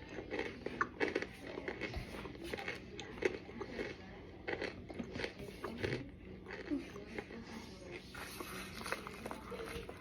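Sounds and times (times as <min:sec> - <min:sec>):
crisp chewing crunches: 0:00.0 - 0:07.4.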